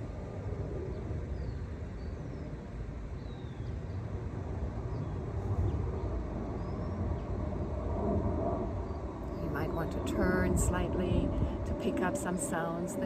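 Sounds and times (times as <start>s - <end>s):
low rumble: 5.3s - 13.0s.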